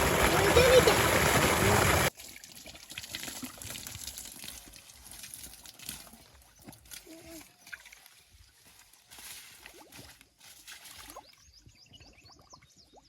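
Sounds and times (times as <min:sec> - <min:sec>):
water spray hissing: 0:00.0 - 0:02.1
water trickling and dripping: 0:00.0 - 0:13.0.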